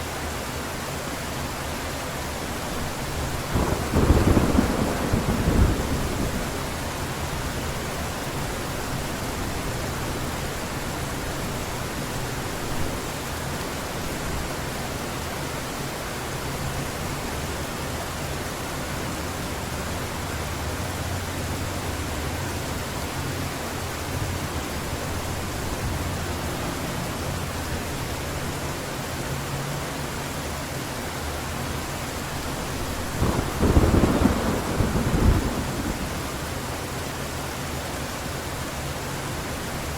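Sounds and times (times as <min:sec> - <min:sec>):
heavy rain falling: 0:00.0 - 0:39.9
distant thunder rumbling: 0:03.5 - 0:06.9, 0:33.0 - 0:36.6
loud thunderclap: 0:03.6 - 0:06.8, 0:33.1 - 0:36.4.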